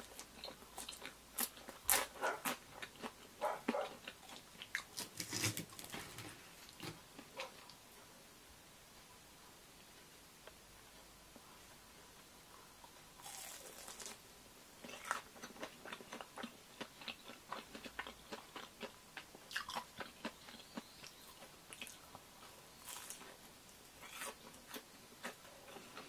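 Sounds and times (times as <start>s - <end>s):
crunchy biting and chewing: 0.0s - 5.9s, 12.8s - 14.2s, 14.8s - 26.0s.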